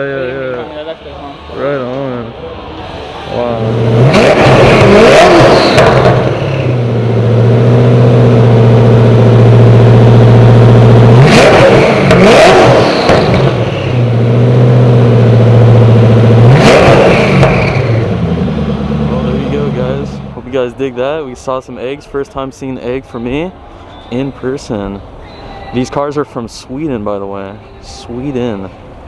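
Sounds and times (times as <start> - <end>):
car engine revving: 1.4 - 20.8.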